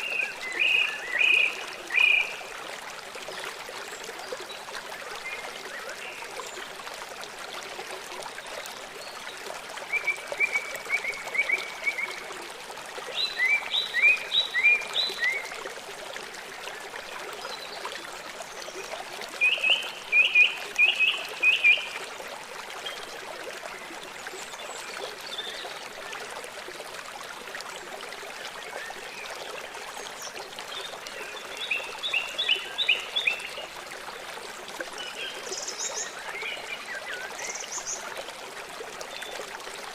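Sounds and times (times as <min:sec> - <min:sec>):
songbird singing: 0:00.0 - 0:02.4, 0:13.1 - 0:15.5, 0:19.4 - 0:22.0
running water: 0:00.0 - 0:39.9.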